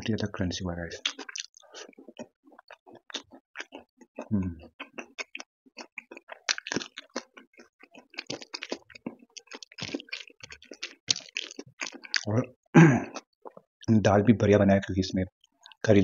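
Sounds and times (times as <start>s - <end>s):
wet mouth clicks: 1.0s - 12.3s
chewing crunchy food: 1.0s - 12.4s, 13.0s - 13.7s, 15.4s - 15.9s.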